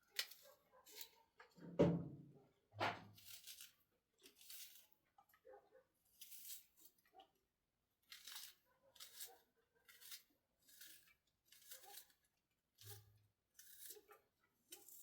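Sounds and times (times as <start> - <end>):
crisp cutting strokes: 3.1 - 5.0, 6.1 - 7.0, 8.1 - 12.2, 12.8 - 15.0.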